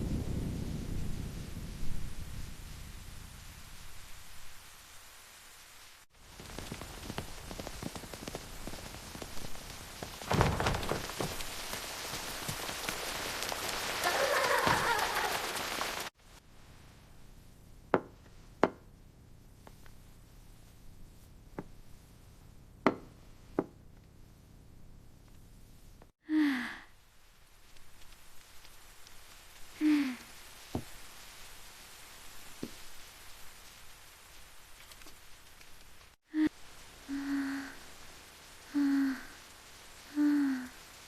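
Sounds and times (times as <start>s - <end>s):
heavy rain pouring: 0.0s - 16.2s, 27.4s - 41.0s.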